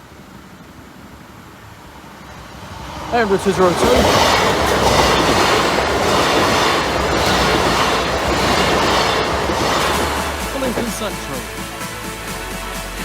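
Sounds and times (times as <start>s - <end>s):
train wheels rushing on rails: 0.0s - 13.0s
wheels clacking over rail joints: 1.8s - 11.8s.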